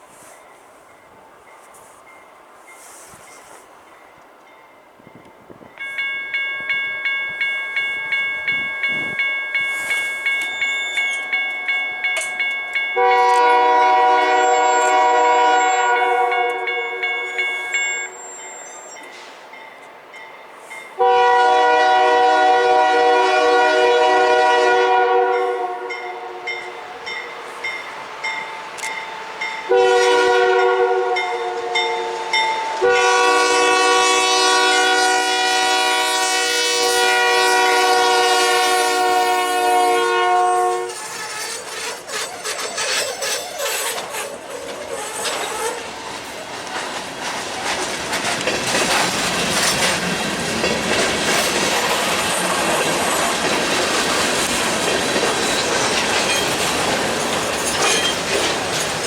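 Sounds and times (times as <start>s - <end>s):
train rumble and wheel clatter: 0.0s - 59.0s
locomotive horn blasts: 13.0s - 18.2s, 21.0s - 27.0s, 29.7s - 41.5s.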